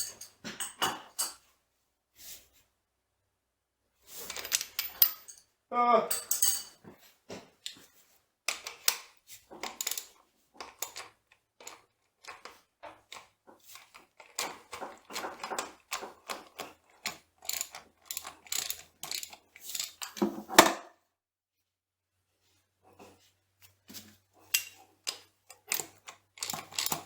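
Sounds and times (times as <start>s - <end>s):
hand tools clanking on steel: 0.0s - 1.4s, 6.1s - 6.8s.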